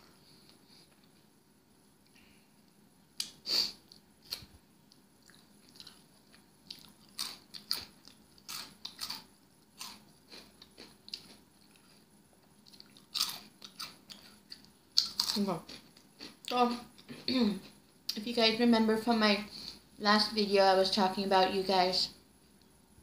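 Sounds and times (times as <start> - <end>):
chewing crunchy food: 3.2 - 17.8.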